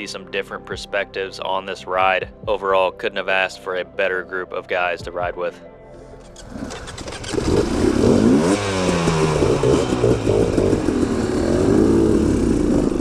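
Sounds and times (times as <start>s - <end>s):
dirt bike engines revving: 6.4s - 13.0s.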